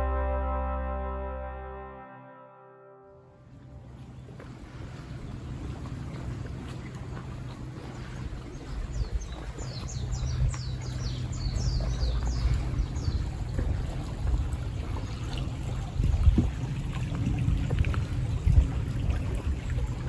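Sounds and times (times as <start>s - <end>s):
low rumble: 0.0s - 6.4s.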